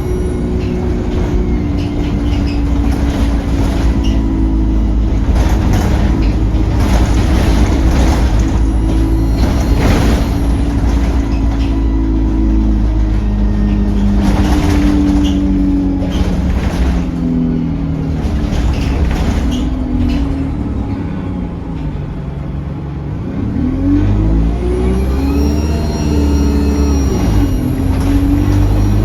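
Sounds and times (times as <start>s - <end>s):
diesel bus engine pulling through gears: 0.0s - 29.0s
turbocharger whistle: 25.0s - 29.0s.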